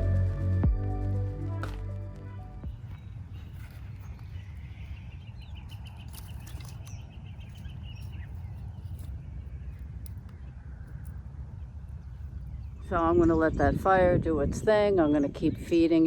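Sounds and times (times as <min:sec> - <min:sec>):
low steady rumble: 0:00.0 - 0:04.7.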